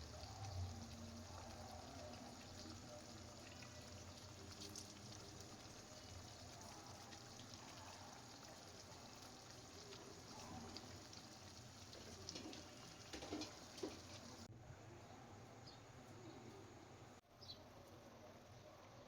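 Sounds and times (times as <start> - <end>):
chicken sizzling in oil: 0.0 - 14.5.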